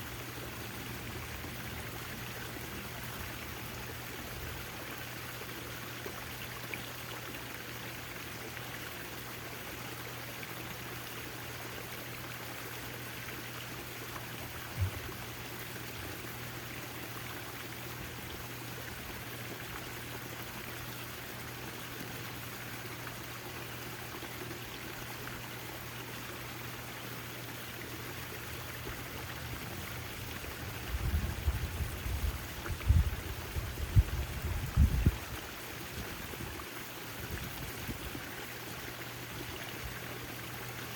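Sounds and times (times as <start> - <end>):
low rumbling knocks: 14.7 - 15.2
low thump: 14.8 - 15.1.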